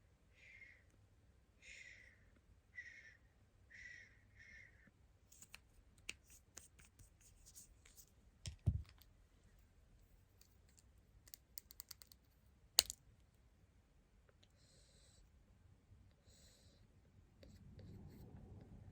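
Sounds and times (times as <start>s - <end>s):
handling a smartphone: 5.3s - 9.2s, 10.0s - 13.0s.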